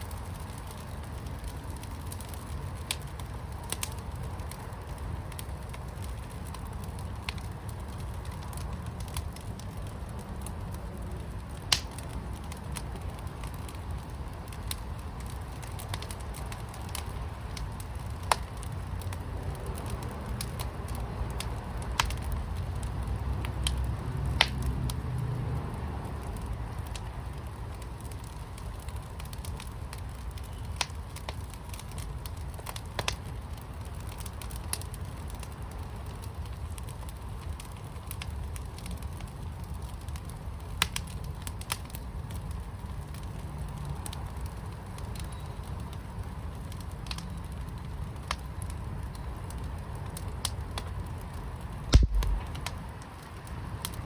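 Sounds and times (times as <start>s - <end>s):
fire crackling and popping: 0.0s - 54.0s
fire low rumble: 0.0s - 54.0s
low thump: 52.0s - 52.6s.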